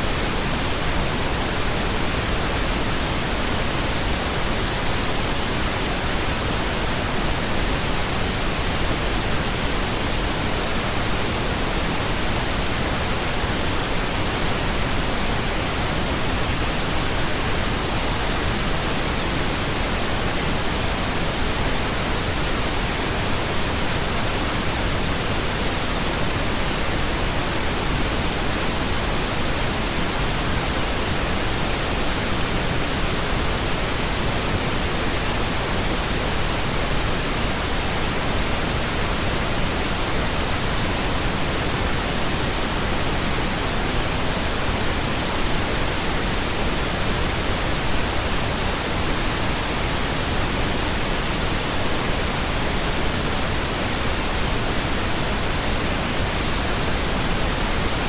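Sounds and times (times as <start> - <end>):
pink noise hiss: 0.0 - 58.0.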